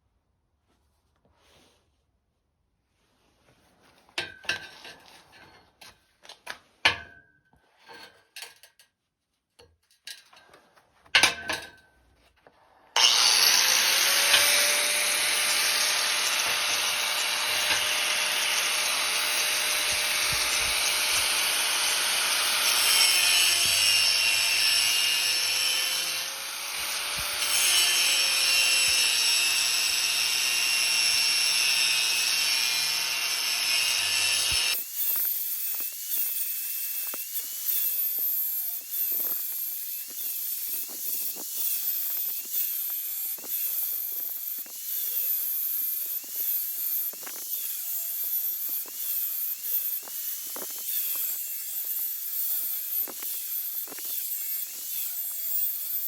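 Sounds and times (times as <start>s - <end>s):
electric power tool running: 13.0s - 56.0s.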